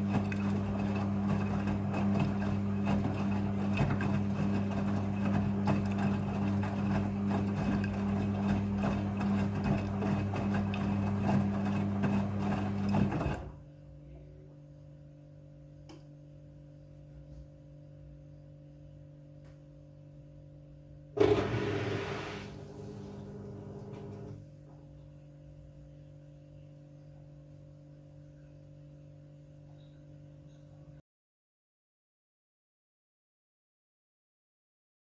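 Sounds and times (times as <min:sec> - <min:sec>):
washing machine running: 0:00.0 - 0:13.6, 0:21.2 - 0:24.5.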